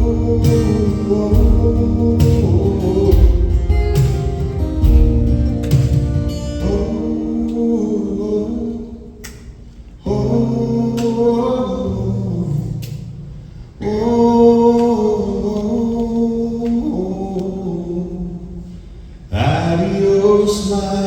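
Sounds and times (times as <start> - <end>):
acoustic guitar chords: 0.0 - 9.2, 10.0 - 17.9
voices singing held notes: 0.0 - 9.2.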